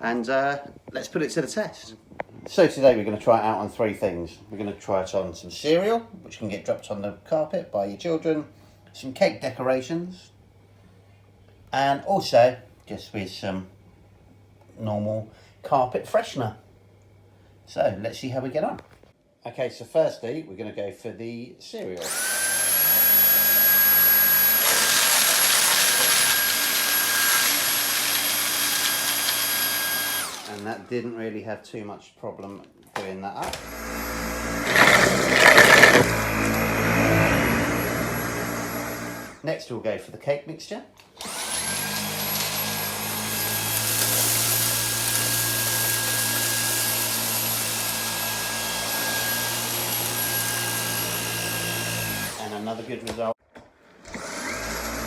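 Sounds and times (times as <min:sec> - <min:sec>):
vacuum cleaner whine: 0:22.0 - 0:30.8, 0:33.4 - 0:39.4, 0:41.2 - 0:53.2, 0:54.0 - 0:55.0
cereal crackling into vacuum: 0:34.7 - 0:36.3.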